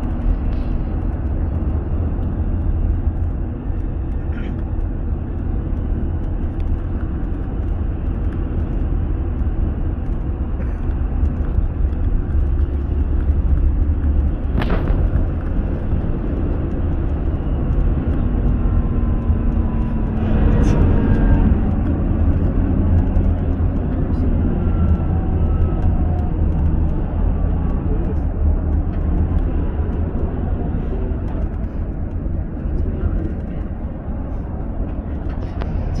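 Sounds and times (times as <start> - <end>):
car road and engine rumble: 0.0 - 36.0.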